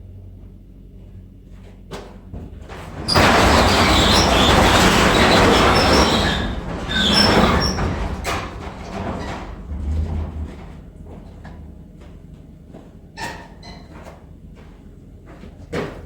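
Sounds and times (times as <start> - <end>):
metal door scraping and squealing: 2.7 - 11.2, 13.2 - 13.9.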